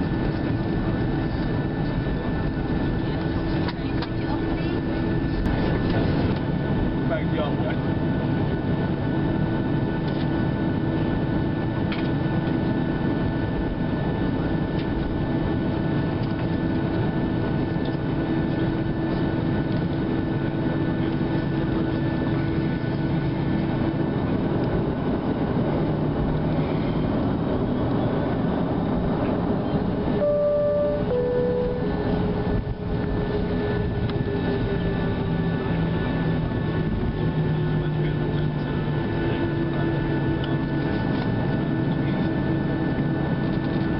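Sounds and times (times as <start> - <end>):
aircraft engines rumbling: 0.0 - 43.9
two-note cabin chime: 30.2 - 32.0.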